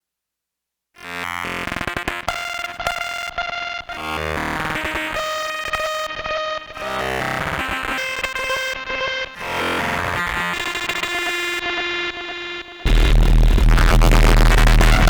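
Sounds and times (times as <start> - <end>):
distorted synthesizer notes: 10.0 - 15.0.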